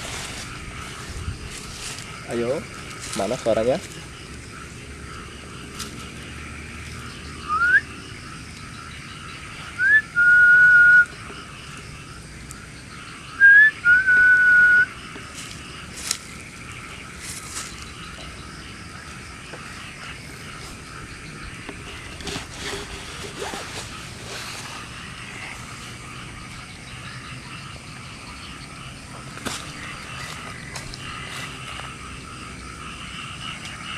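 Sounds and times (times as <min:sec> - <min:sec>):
high-pitched background hiss: 0:00.0 - 0:33.9
person whistling: 0:07.5 - 0:07.8, 0:09.8 - 0:11.0, 0:13.4 - 0:14.9.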